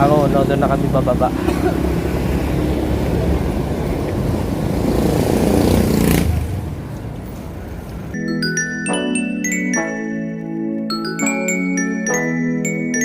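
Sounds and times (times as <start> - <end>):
vehicle passing: 0.0 - 8.2
road noise: 0.0 - 13.0
glockenspiel music: 8.1 - 13.0.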